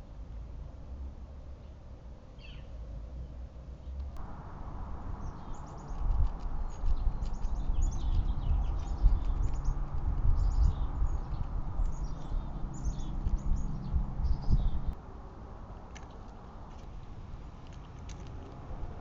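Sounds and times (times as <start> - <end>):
small birds chirping: 1.6 - 15.0
low rumbling: 4.1 - 15.0.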